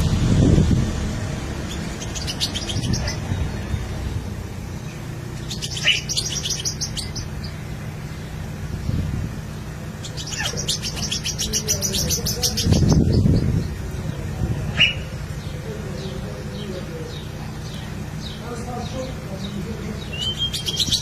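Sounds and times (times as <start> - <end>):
steady low hum: 0.0 - 21.0
bird chirping fast high notes: 5.4 - 8.4.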